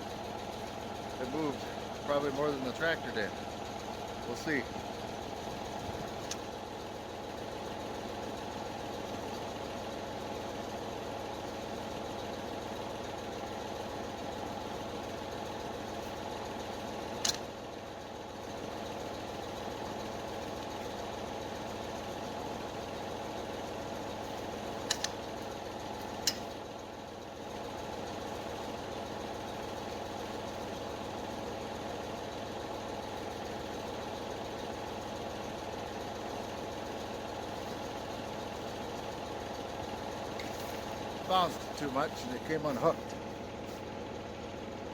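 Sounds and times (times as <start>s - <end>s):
engine idling: 0.0s - 44.9s
sharp metal clank: 26.2s - 26.6s.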